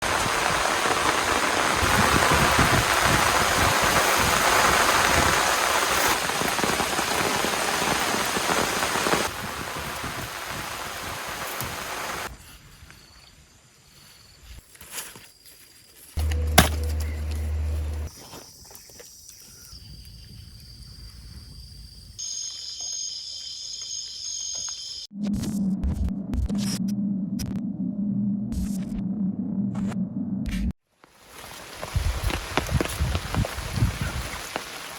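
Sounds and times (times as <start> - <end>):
heavy rain falling: 0.0 - 12.3, 16.2 - 18.1, 31.2 - 34.9
low hum: 16.2 - 18.1, 25.2 - 30.8.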